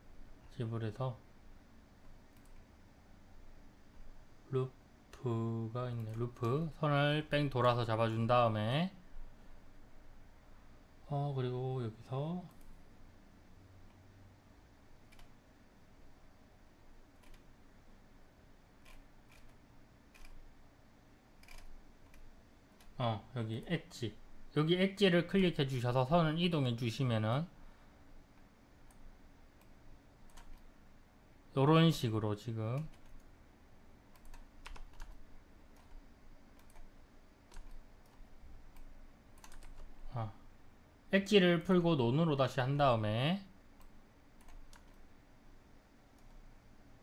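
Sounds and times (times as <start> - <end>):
faint room hum: 0.0 - 47.0
mouse and keyboard clicks: 17.2 - 17.5, 18.8 - 20.4, 21.4 - 23.0.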